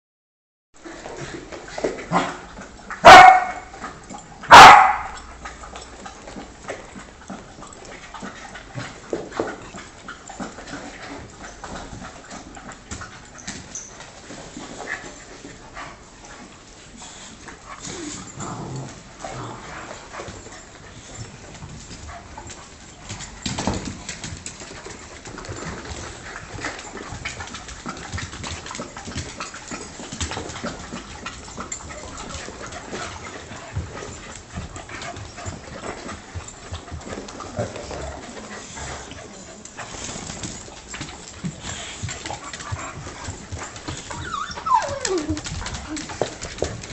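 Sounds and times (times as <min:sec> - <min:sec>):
dogs barking: 0:03.0 - 0:03.7, 0:04.5 - 0:05.2.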